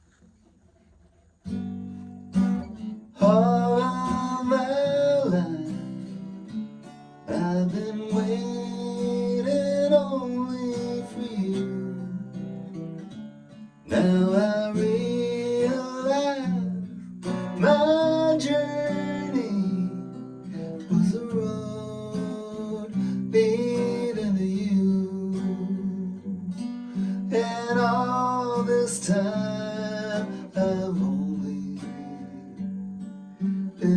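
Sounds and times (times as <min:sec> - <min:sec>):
acoustic guitar playing: 0:00.0 - 0:33.9.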